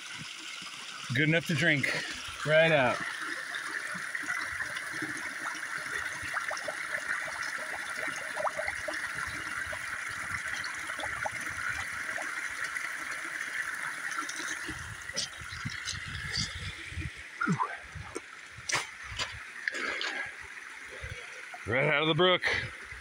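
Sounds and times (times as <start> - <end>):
brook trickling over rocks: 0.0 - 23.0.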